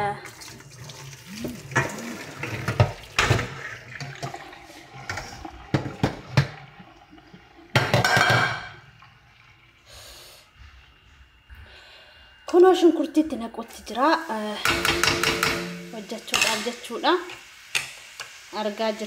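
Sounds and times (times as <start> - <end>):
water pouring and splashing: 0.0 - 10.2
pot or utensils knocking: 7.8 - 8.8, 14.6 - 16.6.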